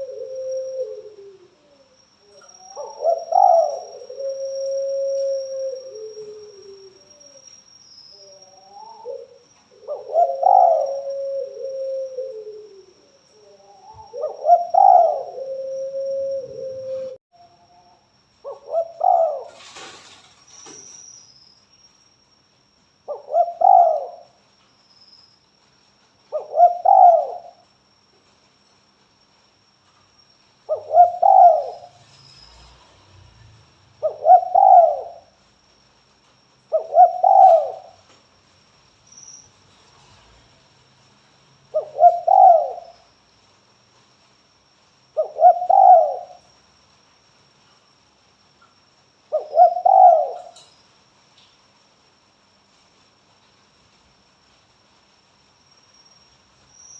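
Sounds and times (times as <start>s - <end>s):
dove cooing: 0.0s - 7.4s, 8.2s - 17.9s, 18.5s - 20.1s, 23.1s - 24.3s, 26.3s - 27.6s, 30.7s - 32.0s, 34.0s - 35.3s, 36.7s - 38.0s, 41.7s - 43.0s, 45.2s - 46.4s, 49.3s - 50.6s
faint high-pitched whine: 0.0s - 56.9s.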